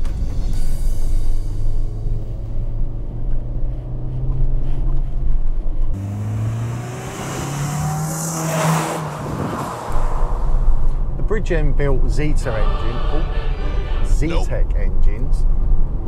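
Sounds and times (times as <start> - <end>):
car engine accelerating: 1.5 - 14.0
car passing by: 6.0 - 11.2.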